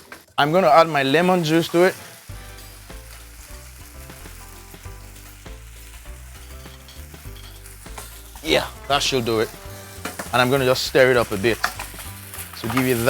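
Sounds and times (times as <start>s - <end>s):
fish sizzling in a frying pan: 0.0s - 13.0s
background music with bass: 2.3s - 13.0s.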